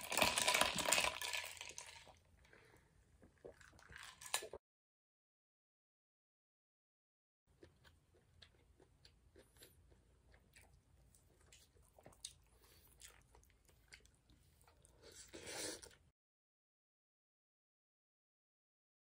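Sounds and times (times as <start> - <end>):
person chewing food: 2.0 - 4.6, 7.5 - 16.1.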